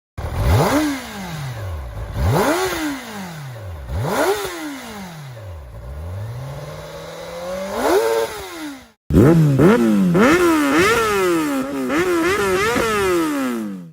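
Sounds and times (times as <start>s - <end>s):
motorcycle engine revving: 0.2s - 13.9s.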